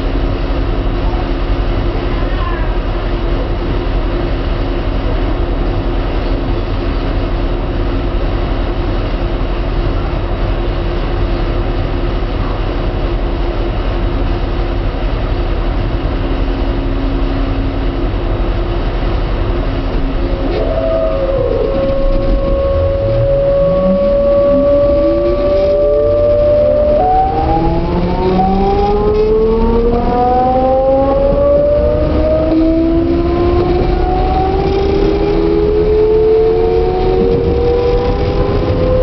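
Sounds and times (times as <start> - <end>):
train equipment hum: 0.0 - 39.0
steady tones: 14.5 - 39.0.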